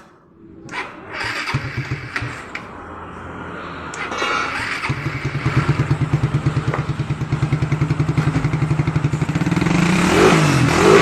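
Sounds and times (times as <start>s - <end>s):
motorcycle engine idling: 4.6s - 9.8s.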